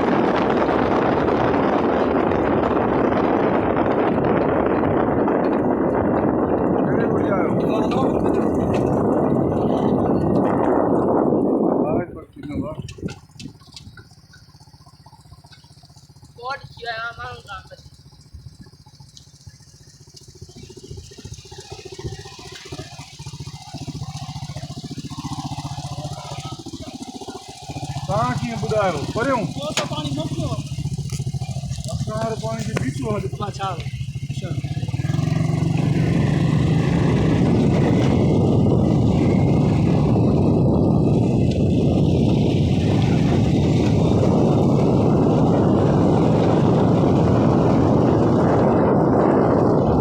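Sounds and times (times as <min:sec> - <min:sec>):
small engine puttering: 0:00.0 - 0:50.0.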